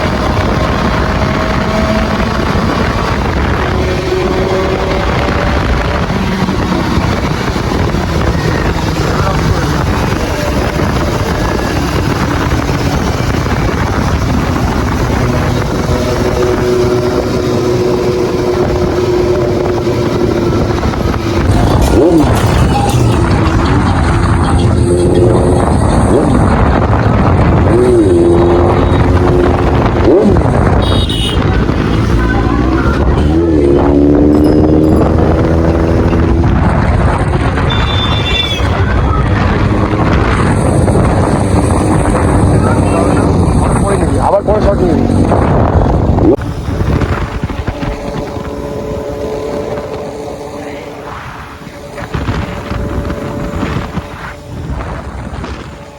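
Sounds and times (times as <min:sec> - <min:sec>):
motorcycle engine running: 0:00.0 - 0:55.9
wind rush on microphone: 0:00.0 - 0:55.9
short high tone: 0:32.2 - 0:35.7.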